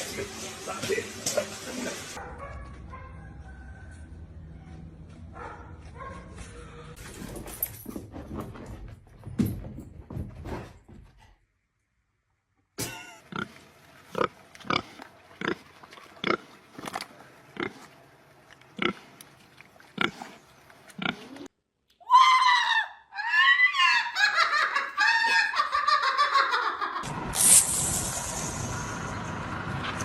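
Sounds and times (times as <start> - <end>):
animal grunting: 19.9 - 21.5.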